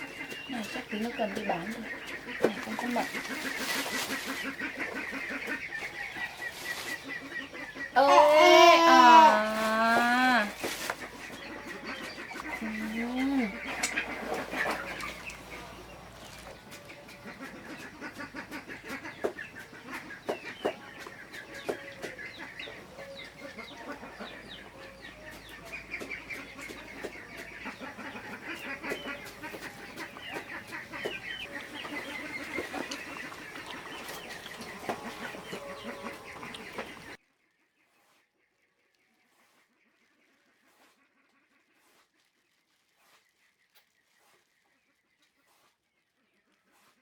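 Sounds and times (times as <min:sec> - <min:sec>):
chickens clucking: 0:00.0 - 0:37.2.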